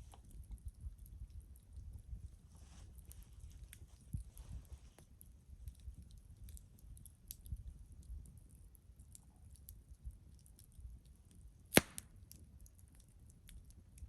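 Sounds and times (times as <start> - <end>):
campfire crackling: 5.0 - 14.0
loud pop of fire: 11.7 - 12.1.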